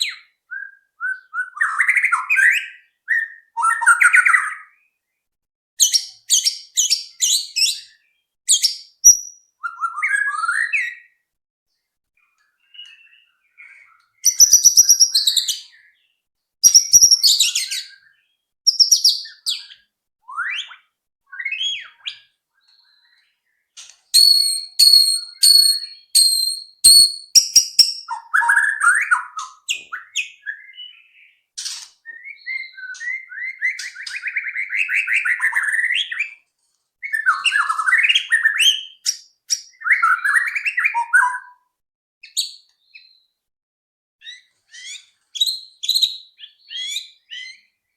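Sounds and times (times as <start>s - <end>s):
bird singing whistled phrases: 0.0s - 4.8s, 5.8s - 11.2s, 12.6s - 16.0s, 16.6s - 23.2s, 24.1s - 31.4s, 32.0s - 36.4s, 37.0s - 41.6s, 44.2s - 47.7s
sharp repeated high bird notes: 24.2s - 28.2s
bird warbling trills: 24.2s - 28.4s.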